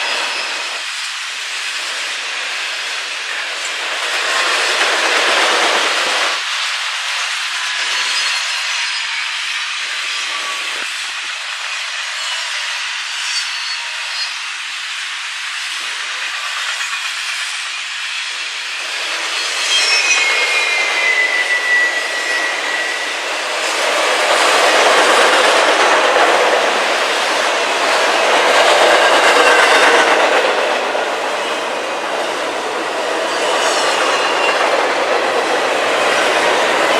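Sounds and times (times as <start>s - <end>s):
high wheel squeal: 0.0s - 0.9s, 7.4s - 10.9s, 11.8s - 14.5s, 17.6s - 36.9s
train rolling on rails: 0.0s - 36.9s.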